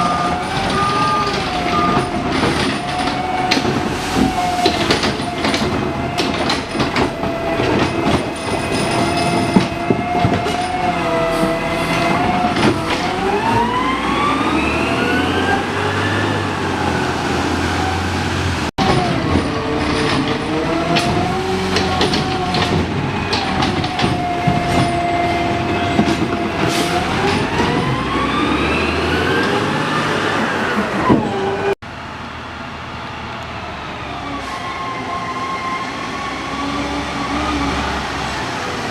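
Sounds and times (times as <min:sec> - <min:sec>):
garbage truck diesel engine: 0:00.0 - 0:38.9
clanks and knocks: 0:00.4 - 0:10.9, 0:12.0 - 0:13.2, 0:18.8 - 0:28.0.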